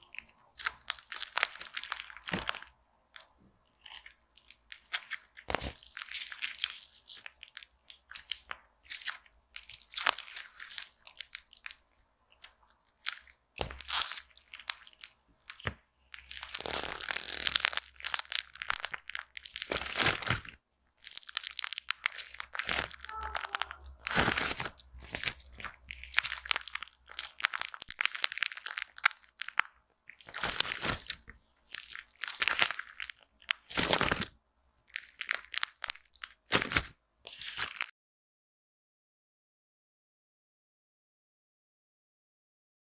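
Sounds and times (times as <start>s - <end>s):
slime being squeezed: 3.9s - 34.3s, 34.9s - 37.9s.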